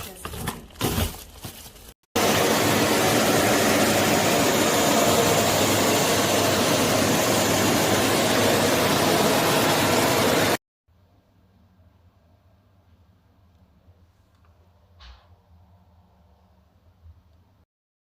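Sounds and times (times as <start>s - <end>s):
vacuum cleaner running: 2.2s - 10.6s.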